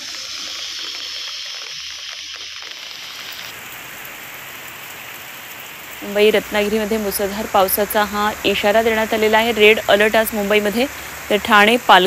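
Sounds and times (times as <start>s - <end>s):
heavy rain: 2.3s - 12.0s
rushing floodwater: 3.5s - 12.0s.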